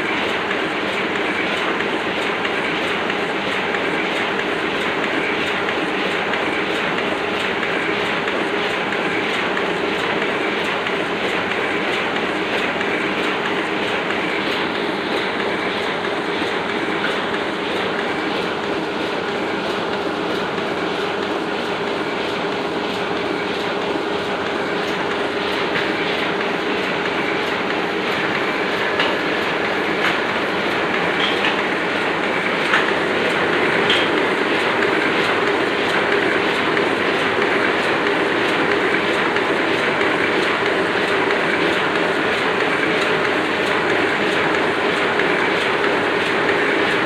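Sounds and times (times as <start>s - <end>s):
printing press clattering: 0.0s - 47.0s.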